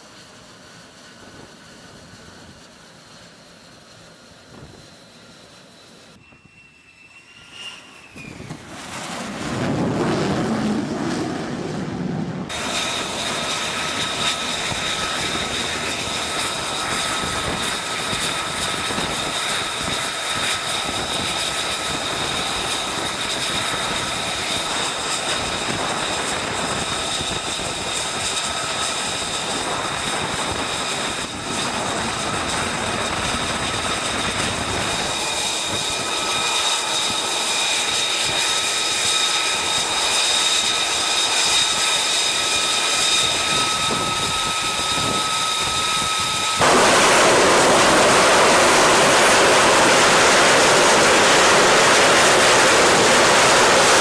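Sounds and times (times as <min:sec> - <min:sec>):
jet engine whine: 0:00.0 - 0:54.0
jet exhaust roar: 0:00.0 - 0:54.0
rushing noise: 0:46.5 - 0:54.0.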